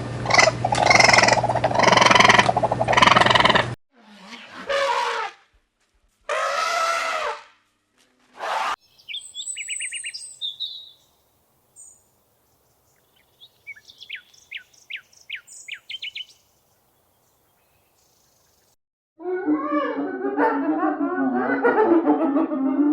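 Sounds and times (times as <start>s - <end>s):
low animal calls: 0.3s - 3.8s
birds chirping: 8.8s - 18.8s.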